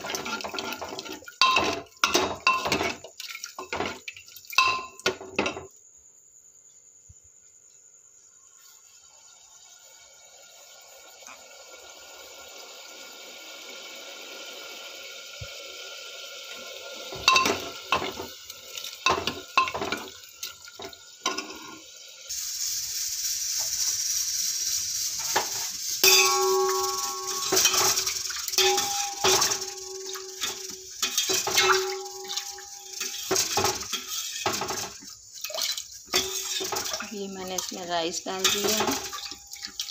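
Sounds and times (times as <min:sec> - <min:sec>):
tap water running into metal vessel: 0:00.0 - 0:05.6, 0:16.5 - 0:21.9, 0:25.1 - 0:39.9
pots and utensils clattering: 0:00.0 - 0:05.7, 0:17.1 - 0:21.9, 0:25.2 - 0:39.9.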